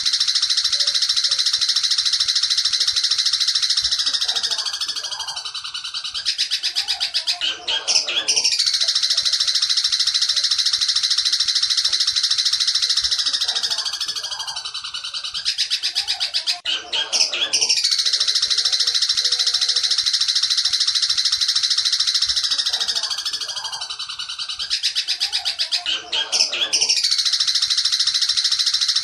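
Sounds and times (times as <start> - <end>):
bird chattering song: 0.0 - 29.0.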